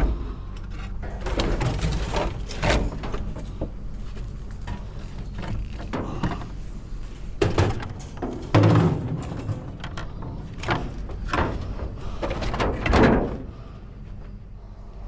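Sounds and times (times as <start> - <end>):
low steady rumble: 0.0 - 15.0
knocks and clunks: 7.4 - 13.6.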